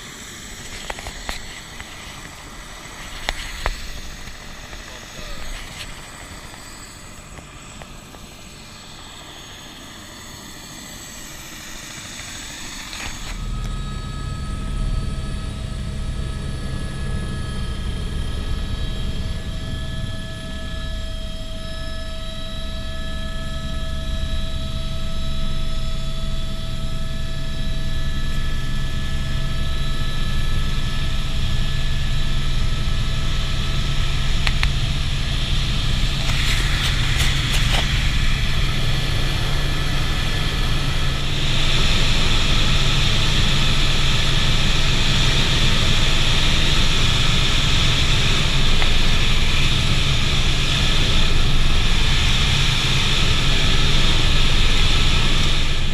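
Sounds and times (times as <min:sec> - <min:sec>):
helicopter rotor drone: 0:00.0 - 0:55.9
turbine whining: 0:00.0 - 0:55.9.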